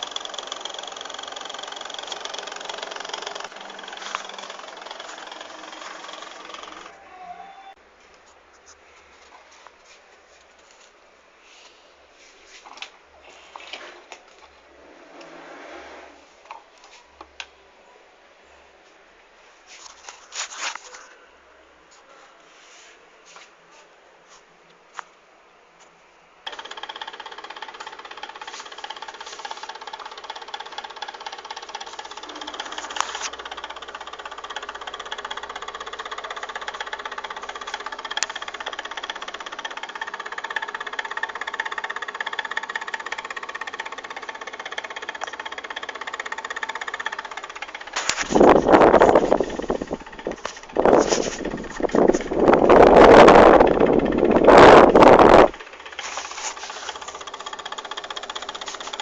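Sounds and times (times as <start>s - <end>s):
electric fan motor humming and rattling: 0.0s - 8.4s, 12.5s - 17.5s, 26.4s - 59.0s.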